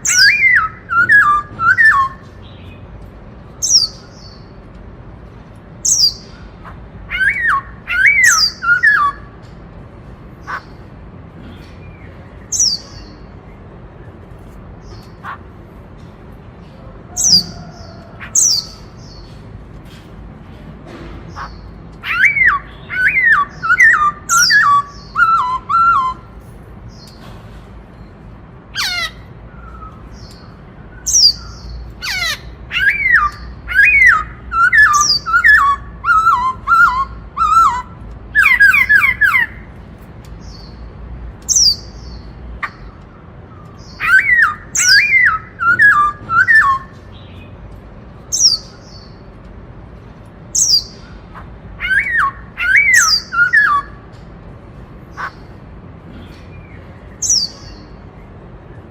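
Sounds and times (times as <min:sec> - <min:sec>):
bird singing whistled notes: 0:00.0 - 0:02.8, 0:07.1 - 0:09.3, 0:22.0 - 0:26.3, 0:43.8 - 0:47.4, 0:51.8 - 0:54.0.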